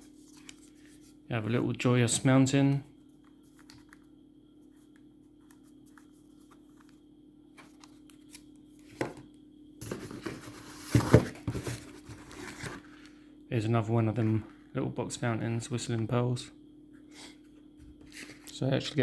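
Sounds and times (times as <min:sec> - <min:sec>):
low steady hum: 0:00.0 - 0:19.0
paper and cardboard rustling: 0:09.8 - 0:13.0.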